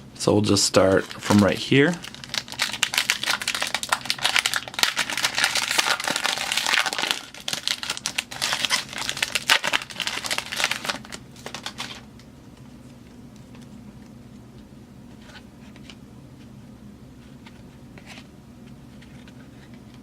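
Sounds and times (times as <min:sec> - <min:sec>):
foil wrapper crinkling: 0:00.8 - 0:12.1.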